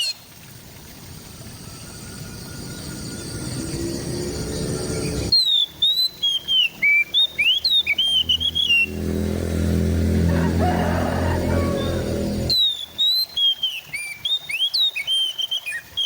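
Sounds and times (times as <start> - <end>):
steady low hum: 0.4 - 5.4, 7.2 - 12.6
bird singing whistled notes: 1.9 - 9.0, 12.1 - 16.0.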